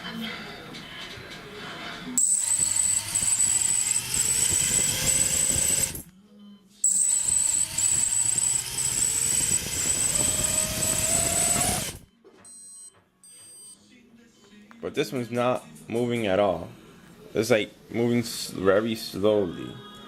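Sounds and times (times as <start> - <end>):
drone motors whining: 2.2 - 6.1, 6.9 - 12.1.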